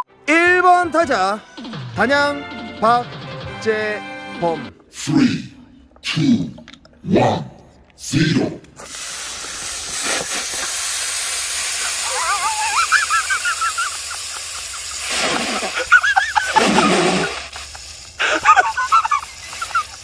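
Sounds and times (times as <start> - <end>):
cola fizzing and hissing: 8.7 - 20.0.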